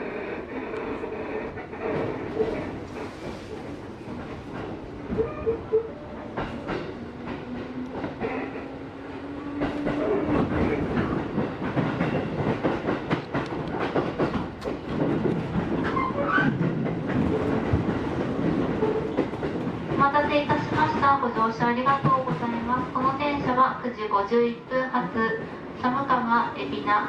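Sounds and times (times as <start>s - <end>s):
train running noise: 0.0s - 27.0s
wheels clicking over rail joints: 9.5s - 23.6s.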